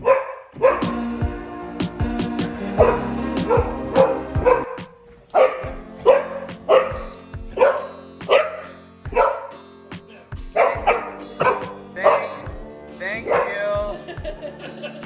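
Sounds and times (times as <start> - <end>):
dog barking: 0.0 - 1.0, 2.8 - 9.5, 10.6 - 12.5, 13.2 - 13.7
background music: 0.0 - 15.0.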